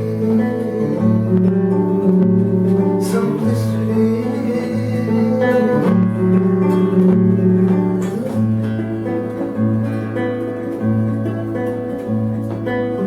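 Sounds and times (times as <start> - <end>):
fingerpicked classical guitar: 0.0 - 13.0.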